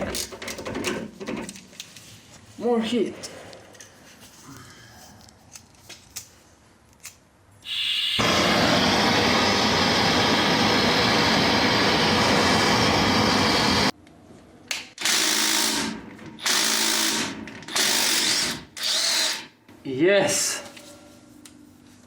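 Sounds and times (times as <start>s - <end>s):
power tool running: 8.1s - 13.9s, 15.0s - 19.5s.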